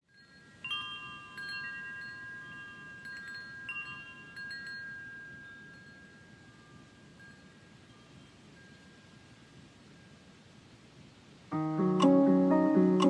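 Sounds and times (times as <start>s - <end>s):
chimes ringing: 0.2s - 8.8s.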